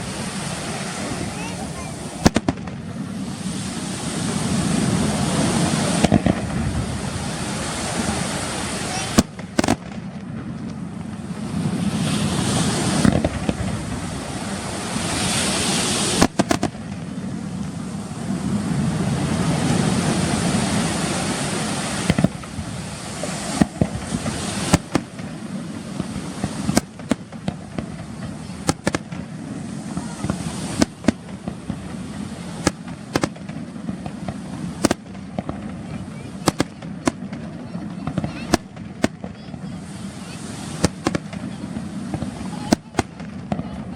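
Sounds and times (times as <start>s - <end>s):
crackling hiss: 0.0s - 43.9s
firework shells bursting: 0.4s - 3.0s, 7.9s - 11.3s, 12.6s - 17.8s, 21.0s - 43.7s.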